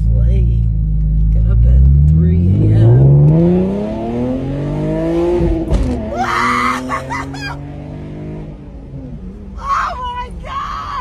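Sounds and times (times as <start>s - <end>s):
car exhaust revs dropping: 1.6s - 8.6s
exhaust pop: 5.4s - 6.2s
woman screaming: 6.1s - 7.6s, 9.6s - 11.0s.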